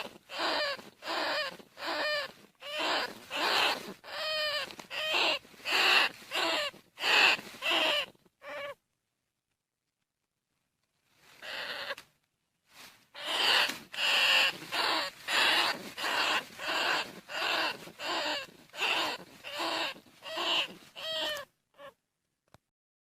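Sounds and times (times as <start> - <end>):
rat squealing calls: 0.0 - 8.8, 11.4 - 12.0, 13.2 - 22.0.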